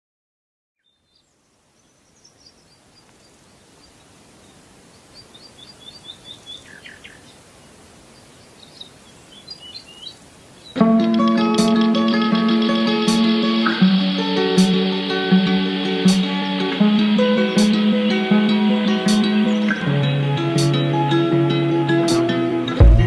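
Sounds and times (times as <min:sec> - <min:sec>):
songbirds chirping: 0:00.8 - 0:22.8
faint outdoor ambience: 0:00.8 - 0:23.0
plucked guitar music: 0:10.8 - 0:23.0.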